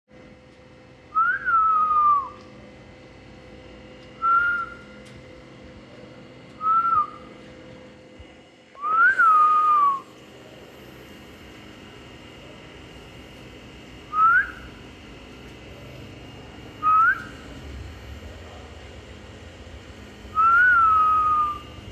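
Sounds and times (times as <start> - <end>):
whistled sliding notes: 8.8 - 10.1, 14.1 - 14.7, 16.8 - 17.4, 20.3 - 21.8.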